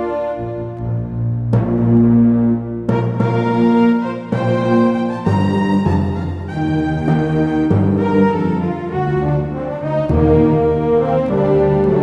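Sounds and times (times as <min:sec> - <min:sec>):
synthesizer brass chords: 0:00.1 - 0:12.0
synth bass line: 0:00.8 - 0:09.0.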